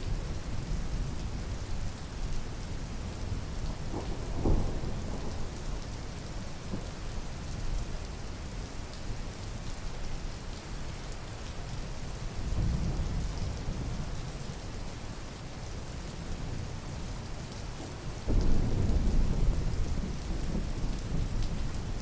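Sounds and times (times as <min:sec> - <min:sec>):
rain falling: 0:00.0 - 0:22.0
thunder rumbling: 0:03.9 - 0:05.8, 0:18.3 - 0:22.0.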